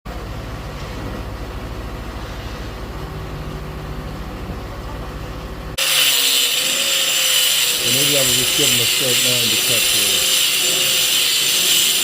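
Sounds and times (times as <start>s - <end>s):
large vehicle engine rumbling: 0.1s - 5.8s.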